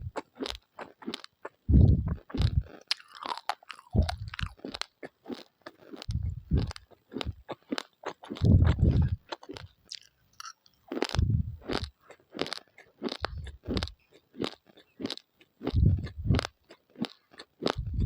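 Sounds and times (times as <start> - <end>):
rice grains crunching when chewed: 0.0 - 18.0
deep dull thuds: 1.7 - 2.7, 6.1 - 6.7, 8.4 - 9.2, 11.1 - 11.8, 15.8 - 16.4, 17.8 - 18.0.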